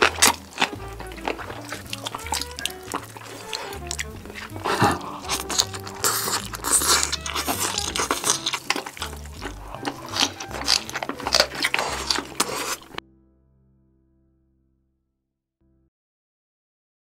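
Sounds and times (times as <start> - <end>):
crunchy chewing and biting: 0.0 - 13.0
background music with bass line: 0.0 - 14.4.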